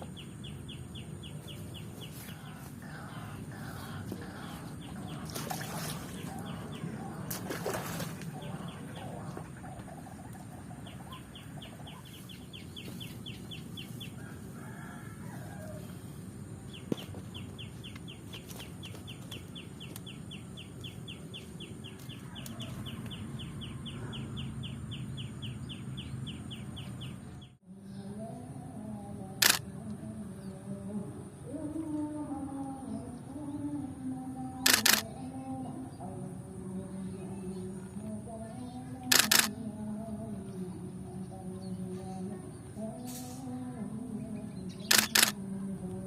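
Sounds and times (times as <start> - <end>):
low background hum: 0.0 - 46.0
camera shutter firing in bursts: 29.4 - 29.7, 34.6 - 35.1, 39.1 - 39.6, 44.8 - 45.4
sharp click: 44.9 - 45.4.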